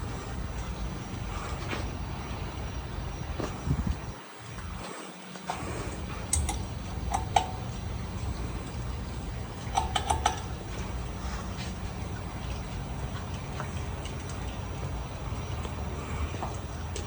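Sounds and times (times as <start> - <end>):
ceiling fan humming: 0.0 - 17.0
light metallic clicks: 6.3 - 7.8, 9.7 - 10.6.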